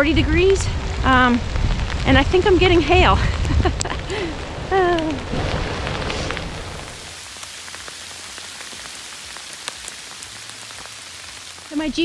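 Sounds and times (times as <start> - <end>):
hail pellets ticking: 0.0 - 12.0
rain hissing: 0.0 - 12.0.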